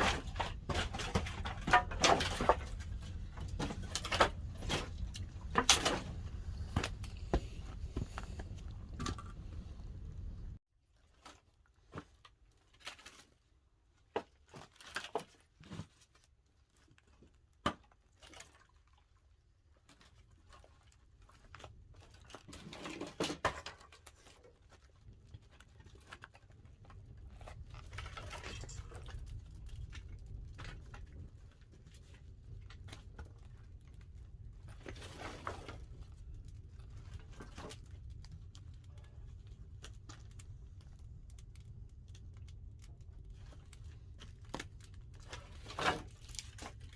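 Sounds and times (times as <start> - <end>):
firewood crackling and popping: 0.0 - 10.6, 23.5 - 46.9.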